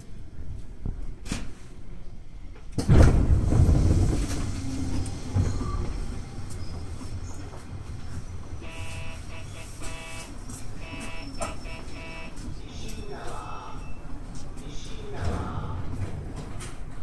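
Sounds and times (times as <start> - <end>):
pulsing electronic tone: 8.6 - 12.3.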